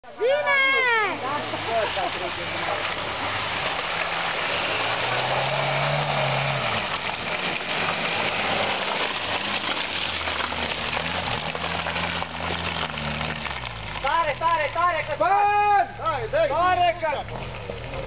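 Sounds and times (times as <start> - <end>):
vehicle engine driving past: 1.4 - 15.2.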